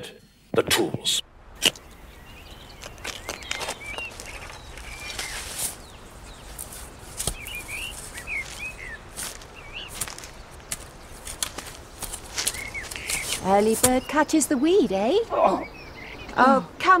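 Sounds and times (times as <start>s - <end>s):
small birds chirping: 1.5s - 17.0s.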